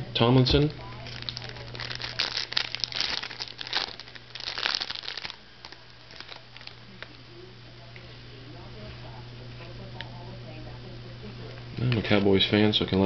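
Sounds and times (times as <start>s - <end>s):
packaging crinkling: 0.8s - 7.2s.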